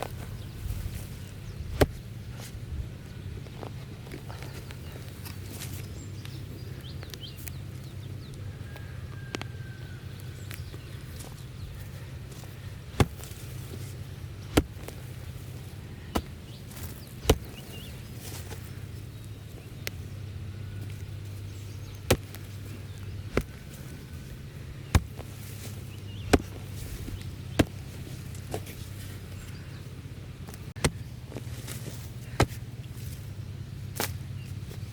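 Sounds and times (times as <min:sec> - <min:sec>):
tool chopping blows: 0:13.0 - 0:13.4, 0:14.5 - 0:15.0, 0:16.2 - 0:17.7, 0:23.3 - 0:23.8, 0:24.9 - 0:25.4, 0:26.2 - 0:26.8.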